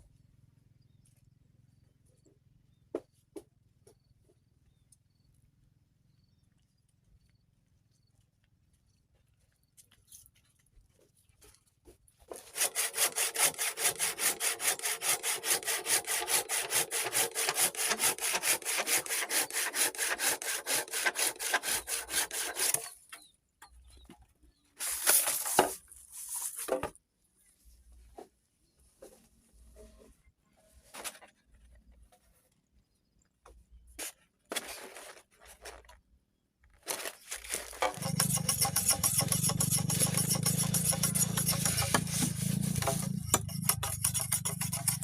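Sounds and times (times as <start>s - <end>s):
short scraping bursts: 12.3s - 23.1s, 36.9s - 45.0s
hand saw cutting wood: 12.3s - 23.2s, 37.4s - 45.0s.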